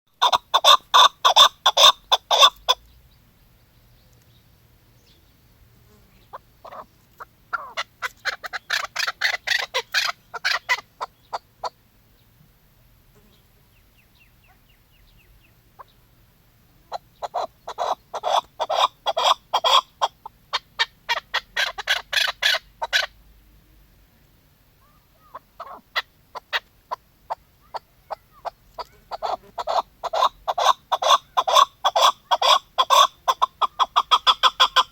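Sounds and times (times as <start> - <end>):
partridge calling: 0.2 - 5.4, 6.2 - 12.3, 13.3 - 16.1, 16.7 - 23.2, 24.8 - 34.9.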